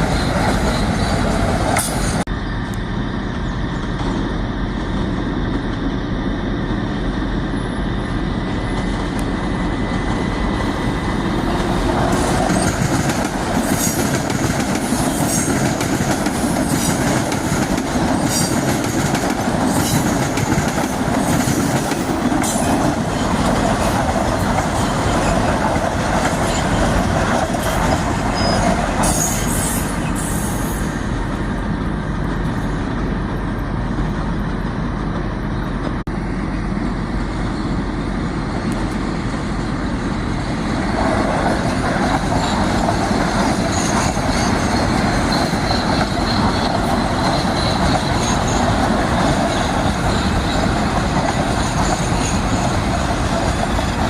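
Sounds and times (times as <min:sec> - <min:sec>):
train rumbling past: 0:00.0 - 0:54.0
high-pitched wheel squeals: 0:28.3 - 0:30.6, 0:43.7 - 0:48.8.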